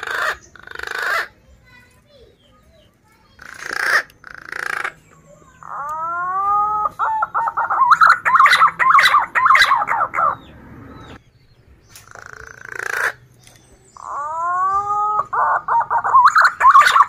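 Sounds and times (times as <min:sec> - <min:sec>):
pigeon warbling whistled notes: 0:05.6 - 0:10.5, 0:14.0 - 0:17.0.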